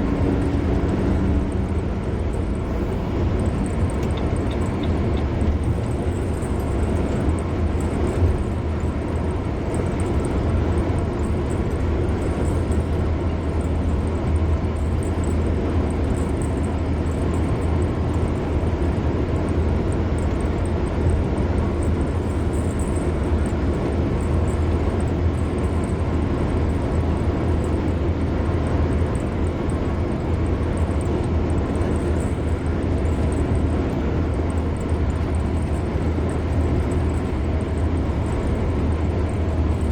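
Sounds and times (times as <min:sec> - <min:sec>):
car tyre and road noise: 0:00.0 - 0:39.9
low engine rumble: 0:00.0 - 0:39.9.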